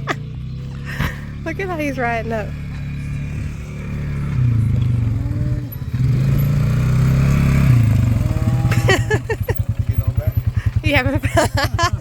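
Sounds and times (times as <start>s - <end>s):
atv engine revving and idling: 0.0s - 12.0s.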